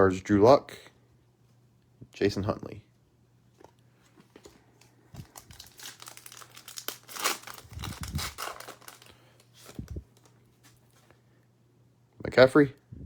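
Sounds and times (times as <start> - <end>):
foil wrapper torn and crinkled: 5.2 - 10.4.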